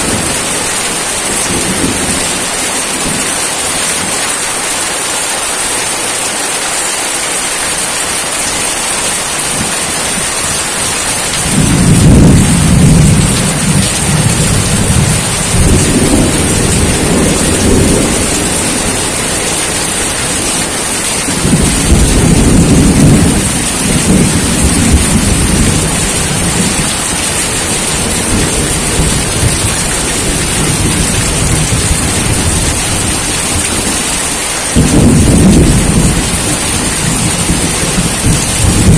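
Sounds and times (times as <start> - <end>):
steady rain: 0.0 - 38.9
rolling thunder: 9.6 - 38.9.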